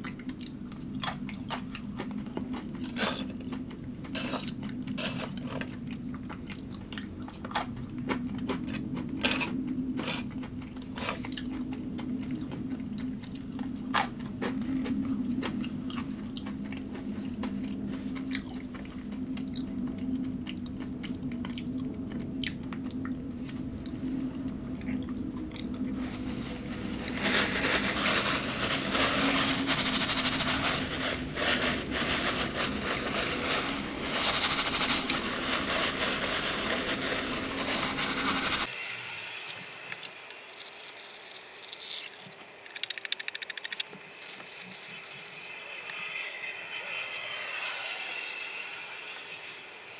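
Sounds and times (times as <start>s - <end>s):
person chewing crunchy food: 0.0s - 24.0s.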